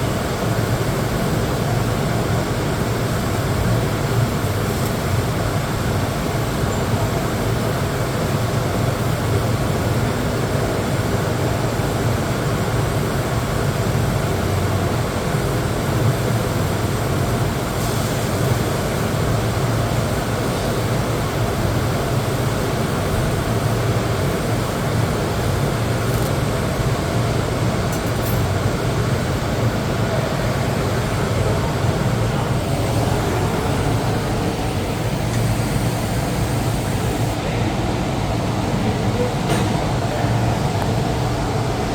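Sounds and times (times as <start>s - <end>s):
welder humming and hissing: 32.4s - 37.4s.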